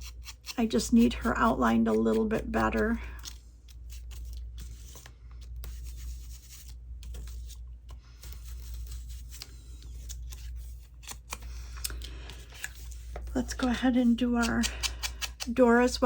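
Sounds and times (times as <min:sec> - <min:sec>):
ink applicator scratching paper: 0:03.9 - 0:07.6.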